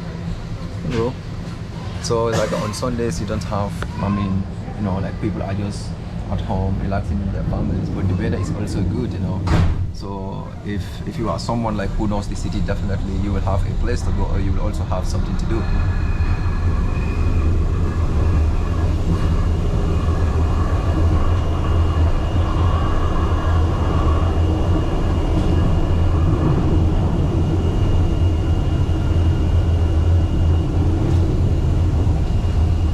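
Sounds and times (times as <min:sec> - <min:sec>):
low rumble of railway car: 0:00.0 - 0:32.9
thin high whine: 0:11.2 - 0:32.9.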